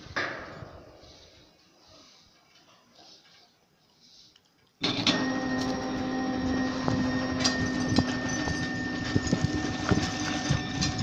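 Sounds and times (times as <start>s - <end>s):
sawmill machinery whining: 4.8s - 11.0s.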